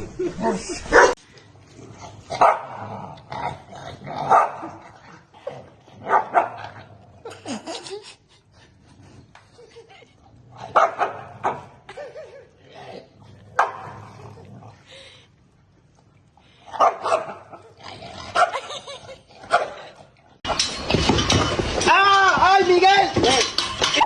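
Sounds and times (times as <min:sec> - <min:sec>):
dog barking: 0:00.9 - 0:01.2, 0:02.4 - 0:02.8, 0:04.3 - 0:04.6, 0:06.1 - 0:06.6, 0:10.8 - 0:11.6, 0:16.8 - 0:17.4.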